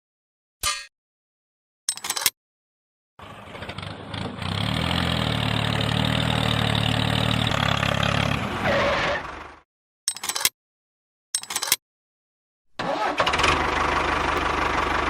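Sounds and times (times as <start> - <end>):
engine running with rattle: 3.2 - 9.6, 12.8 - 15.0.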